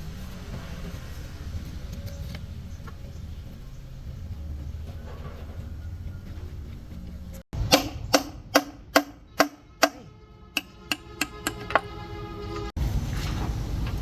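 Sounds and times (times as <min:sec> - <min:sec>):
hammer striking metal: 0:07.6 - 0:12.7
metal ringing: 0:07.6 - 0:12.7.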